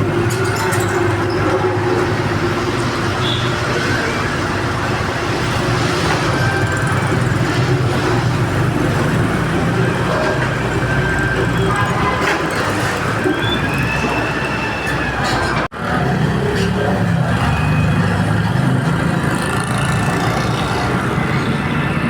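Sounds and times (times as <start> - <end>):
heavy engine humming: 0.0 - 22.0.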